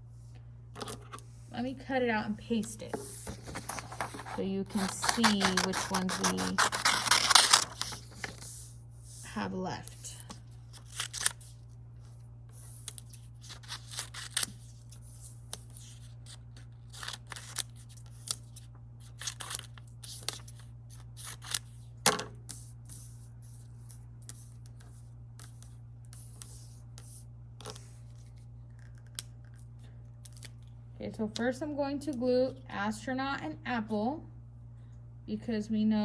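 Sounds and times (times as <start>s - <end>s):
low steady hum: 0.0s - 36.0s
paper rustling: 2.8s - 8.7s
scissors snipping paper: 3.4s - 8.4s, 12.8s - 14.7s.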